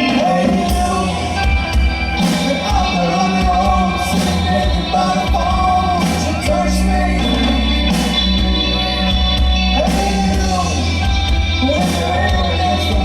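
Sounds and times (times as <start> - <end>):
live band music: 0.0 - 13.0
person singing: 0.0 - 13.0.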